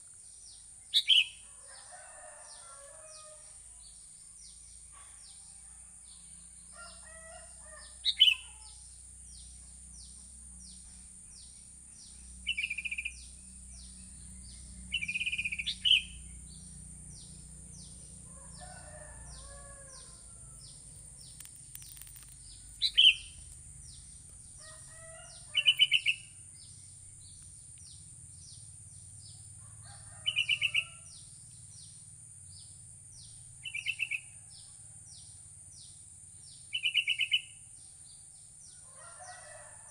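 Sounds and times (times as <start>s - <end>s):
other birds calling: 14.9s - 27.8s.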